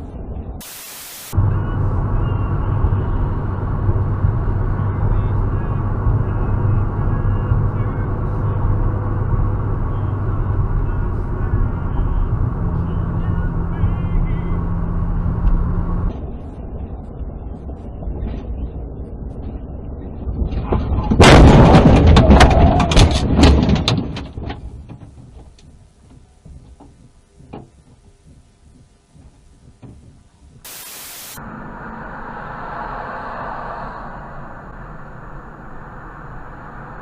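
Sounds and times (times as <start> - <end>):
car driving noise: 0.6 - 18.0, 30.7 - 37.0.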